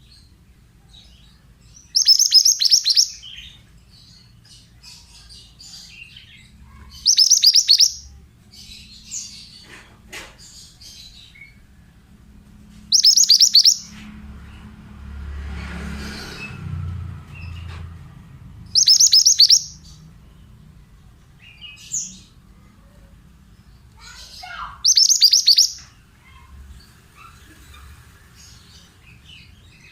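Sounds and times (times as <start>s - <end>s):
bird song bursts: 0.0s - 9.7s, 12.9s - 14.1s, 18.7s - 20.5s, 23.7s - 29.9s
soft bird chirps: 0.0s - 12.0s, 12.7s - 14.7s, 18.7s - 29.9s.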